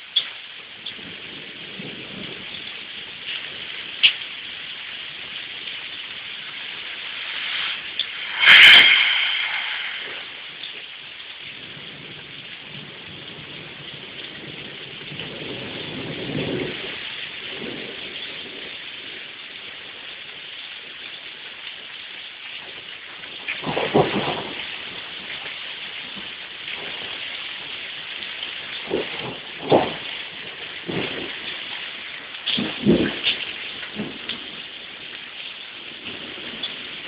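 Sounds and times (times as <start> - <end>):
rain hissing: 0.0 - 37.0
low thunder rumbles: 0.8 - 21.1, 22.7 - 37.0
drip ticks: 4.0 - 4.2
loud thunder crack: 7.7 - 12.2.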